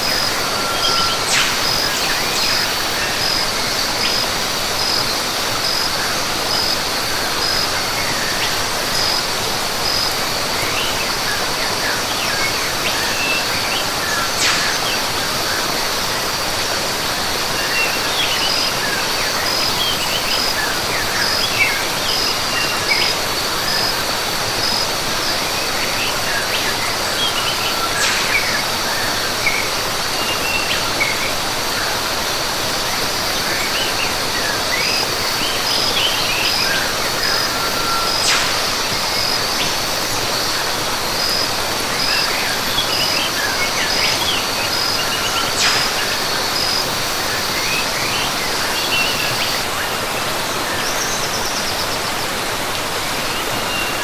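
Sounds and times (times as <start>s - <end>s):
high insect drone: 0.0s - 49.6s
pulsing insect call: 0.0s - 49.6s
falling water rushing: 0.0s - 54.0s
short bird chirps: 0.1s - 3.2s, 14.4s - 15.3s, 27.4s - 29.3s.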